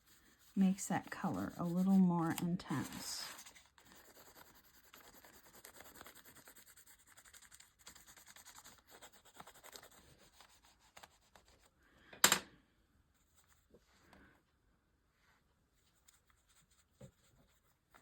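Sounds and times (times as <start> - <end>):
brush scratchy rubbing on paper: 0.0 - 11.7, 15.7 - 18.0.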